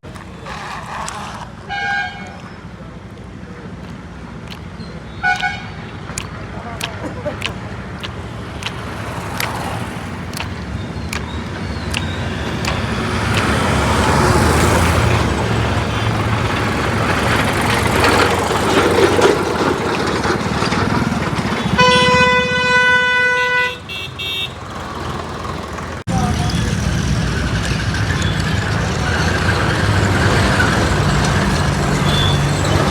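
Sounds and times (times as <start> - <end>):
steady horn tone: 21.6 - 24.6.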